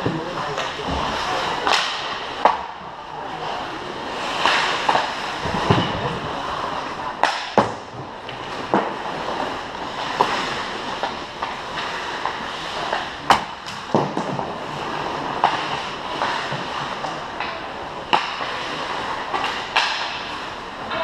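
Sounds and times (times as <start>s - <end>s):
sticks and puck hitting boards: 0.0s - 2.8s, 4.3s - 21.0s
steady background noise: 0.0s - 21.0s
skates scraping on ice: 8.0s - 17.3s.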